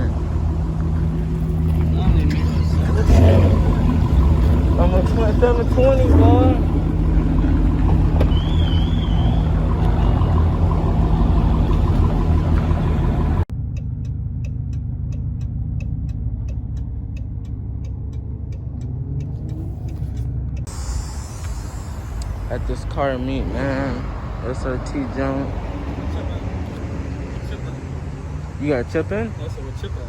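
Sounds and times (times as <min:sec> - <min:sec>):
fast even ticking: 0:00.0 - 0:26.3
car engine rumble: 0:00.0 - 0:30.0.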